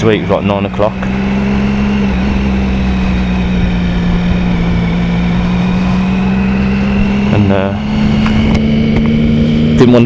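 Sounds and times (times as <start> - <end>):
motorcycle engine cruising: 0.0 - 10.0
wind and road noise: 0.0 - 10.0.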